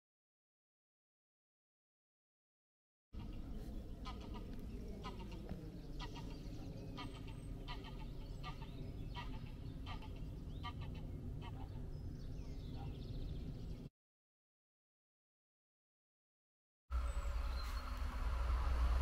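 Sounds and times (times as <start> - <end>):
birds calling: 3.2 - 13.9, 17.0 - 18.6
steady low rumble: 3.2 - 13.9, 16.9 - 19.0.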